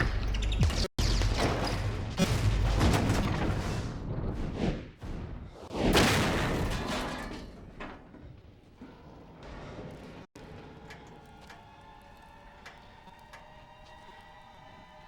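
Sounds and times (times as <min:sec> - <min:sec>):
explosions: 0:00.6 - 0:08.1
crashing wreckage: 0:01.0 - 0:11.6.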